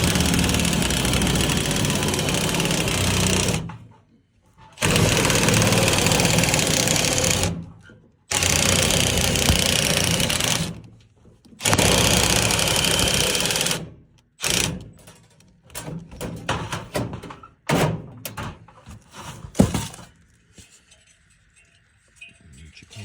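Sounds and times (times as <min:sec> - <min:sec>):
power tool cutting sheet metal: 0:00.0 - 0:03.8, 0:04.8 - 0:07.6, 0:08.3 - 0:10.8, 0:11.6 - 0:14.8
sheet metal knocking and clattering: 0:14.9 - 0:18.8.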